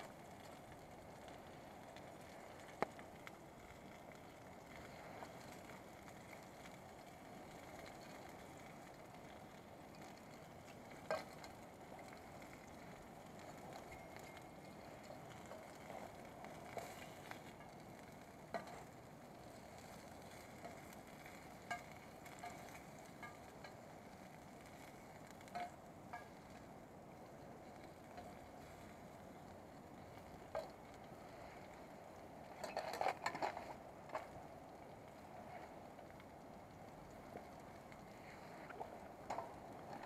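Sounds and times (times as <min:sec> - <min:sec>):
pops and crackles: 0:00.0 - 0:40.0
food sizzling in a frying pan: 0:04.4 - 0:32.0.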